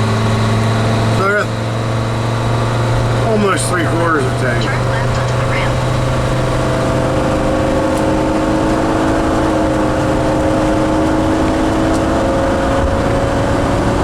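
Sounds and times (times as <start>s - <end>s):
engine accelerating: 0.0s - 14.0s
road noise: 0.0s - 14.0s.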